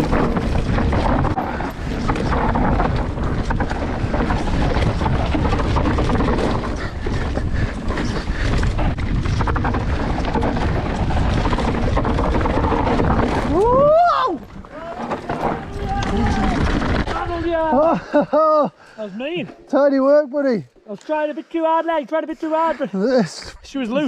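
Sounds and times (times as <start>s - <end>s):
wind noise on microphone: 0.0s - 17.8s
bike tyres clattering over rock: 0.0s - 18.0s.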